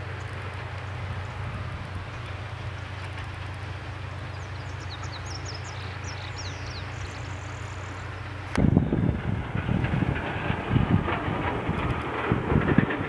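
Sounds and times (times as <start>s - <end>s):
low rumble: 0.0s - 13.0s
wind buffeting microphone: 0.0s - 13.0s
bird chirps: 4.2s - 8.3s.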